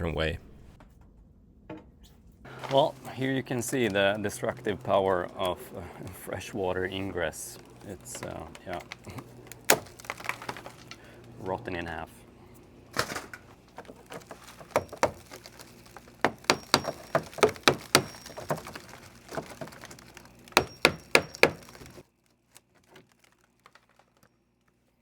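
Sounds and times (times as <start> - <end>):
wood being struck and broken: 3.7 - 11.4, 12.9 - 22.0.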